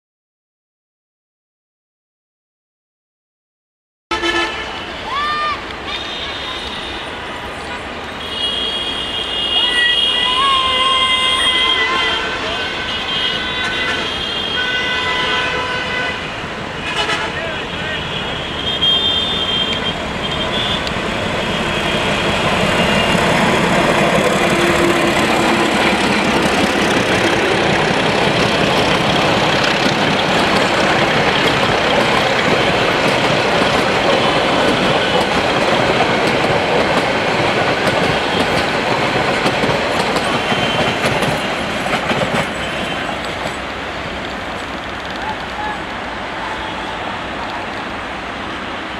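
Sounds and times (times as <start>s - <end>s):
train wheels on rails: 5.0s - 48.9s.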